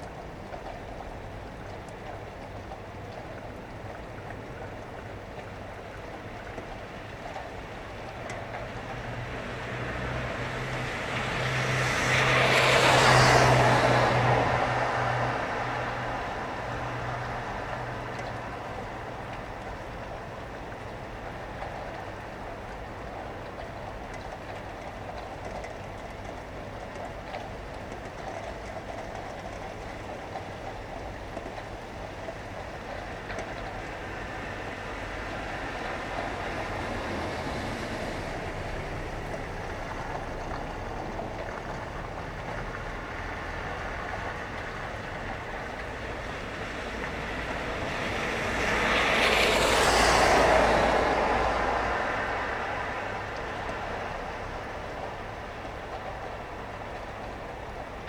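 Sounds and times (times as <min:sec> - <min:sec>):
rain: 0:00.0 - 0:58.0
traffic hum: 0:00.0 - 0:58.0
vehicle passing close: 0:07.6 - 0:19.2, 0:33.6 - 0:57.9.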